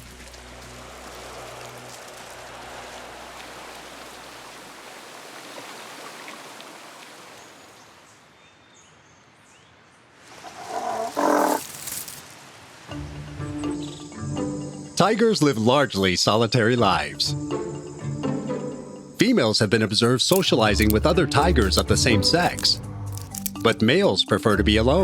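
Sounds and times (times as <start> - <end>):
background hiss: 10.2 - 13.0
tiger roaring: 10.4 - 11.6.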